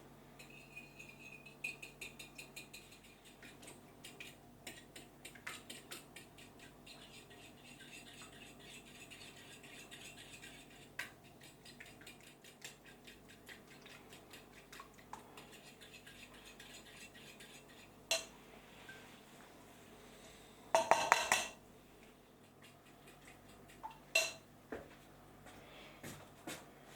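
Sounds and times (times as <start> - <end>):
utensil scraping and tapping dish: 0.4 - 18.4, 20.7 - 21.6, 22.4 - 24.9
dishes clattering: 20.8 - 21.6, 23.8 - 24.4.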